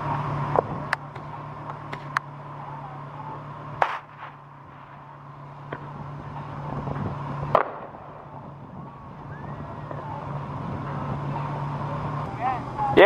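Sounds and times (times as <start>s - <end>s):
steady low hum: 0.0s - 13.0s
small pop: 3.8s - 4.4s, 7.5s - 7.9s
firecracker bang: 3.8s - 5.0s, 7.5s - 8.4s.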